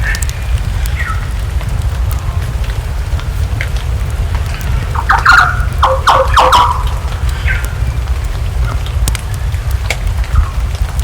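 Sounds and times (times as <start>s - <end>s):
bird calling: 0.0s - 1.3s, 4.9s - 7.9s
crackling wood fire: 0.0s - 11.0s
rain: 0.0s - 11.0s
steady low rumble: 0.0s - 11.0s.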